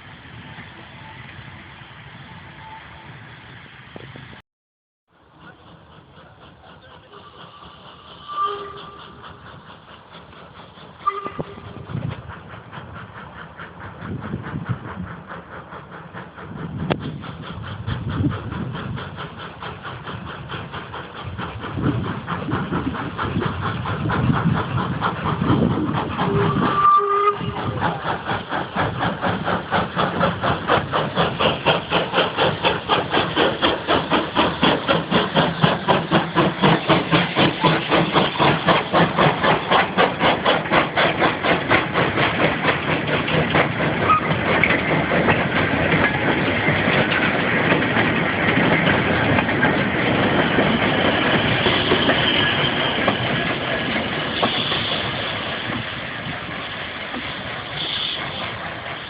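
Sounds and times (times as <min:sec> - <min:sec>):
steam locomotive chuffing: 0:05.1 - 0:59.0
steam whistle blast: 0:08.2 - 0:09.2, 0:11.0 - 0:11.9, 0:26.3 - 0:27.6, 0:57.8 - 0:58.4.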